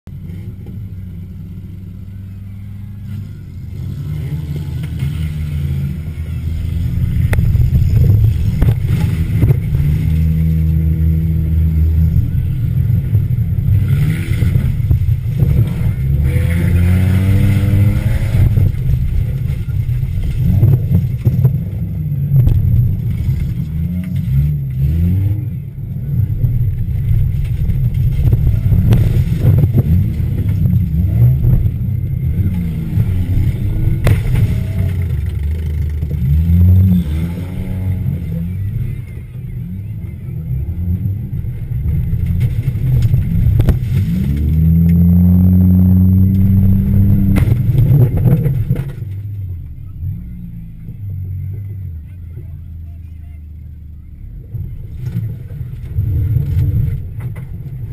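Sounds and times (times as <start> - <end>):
car engine revving: 0.1 - 53.0
knocks and clatter: 32.5 - 36.4, 46.3 - 49.4.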